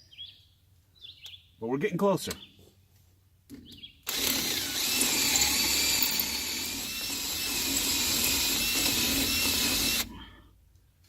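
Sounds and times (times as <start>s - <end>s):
power drill motor whine: 4.0s - 10.1s.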